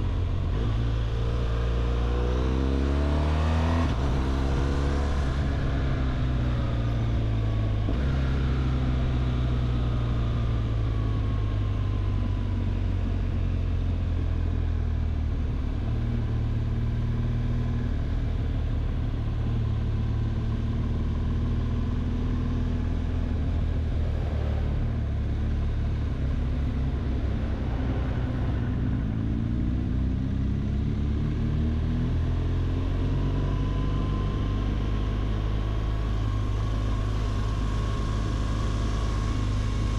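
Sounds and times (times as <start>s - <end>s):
motorcycle engine running: 32.7s - 39.9s.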